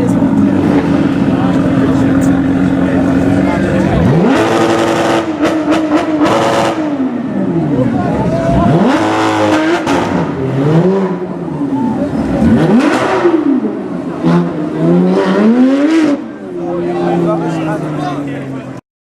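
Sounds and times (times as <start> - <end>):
sports car engine revving: 0.0 - 18.6.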